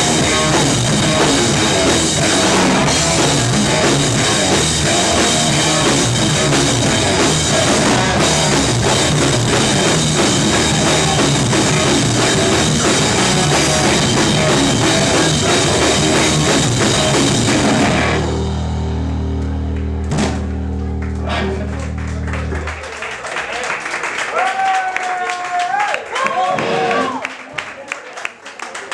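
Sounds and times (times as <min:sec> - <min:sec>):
rock band playing live: 0:00.0 - 0:22.8
drum kit pounding: 0:00.0 - 0:22.9
sustained guitar chord ringing: 0:17.6 - 0:22.7
sharp drum hit: 0:20.0 - 0:20.9.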